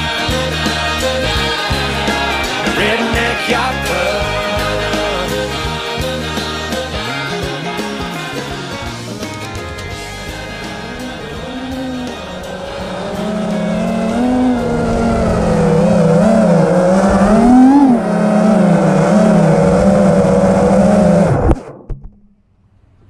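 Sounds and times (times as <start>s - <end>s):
quadcopter motors whining: 10.0s - 21.5s.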